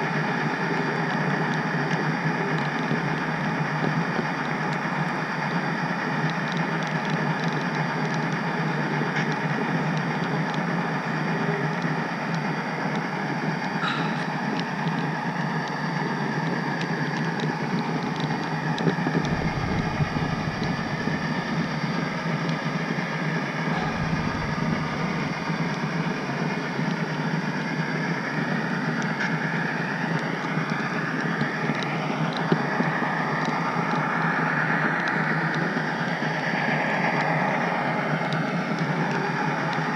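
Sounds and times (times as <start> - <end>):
model train wheels on rails: 0.0 - 39.9
gliding whines: 18.8 - 27.7.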